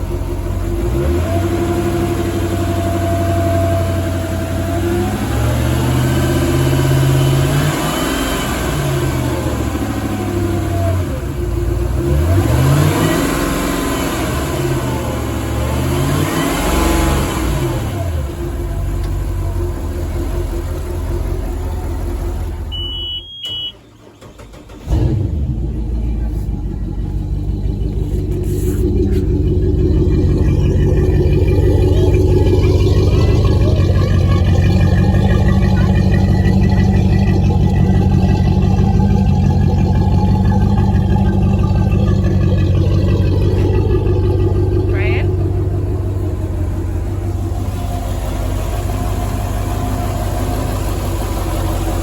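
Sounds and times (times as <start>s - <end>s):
engine running: 0.0s - 52.0s
short electronic beep: 22.7s - 23.9s.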